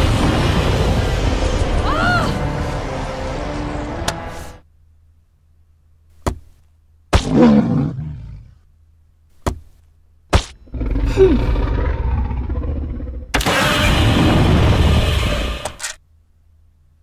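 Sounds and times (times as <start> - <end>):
monster growling roar: 10.7 - 15.6.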